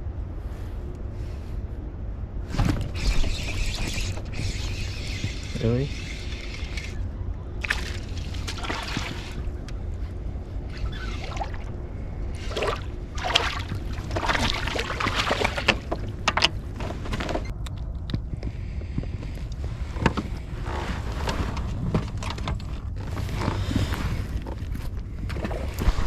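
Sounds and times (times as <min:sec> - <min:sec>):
low rumble: 0:00.0 - 0:26.0
water sloshing against hull: 0:02.5 - 0:17.6, 0:18.8 - 0:26.0
knocks and rustles: 0:13.3 - 0:17.5.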